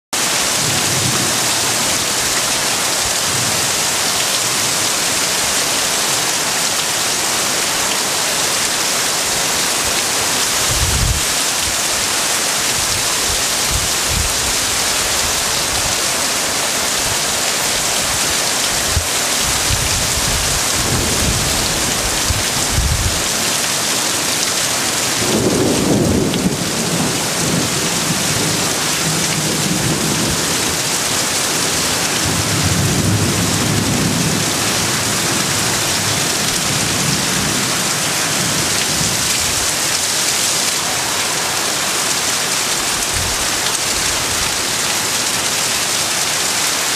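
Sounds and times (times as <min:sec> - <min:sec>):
heavy rain pouring: 0:00.1 - 0:46.9
wind buffeting microphone: 0:10.6 - 0:12.1, 0:12.7 - 0:16.1, 0:16.9 - 0:23.4.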